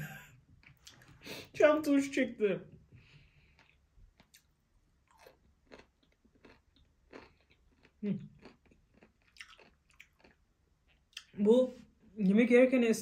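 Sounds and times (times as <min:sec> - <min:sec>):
crunchy chewing of a pickle: 0:03.4 - 0:11.3.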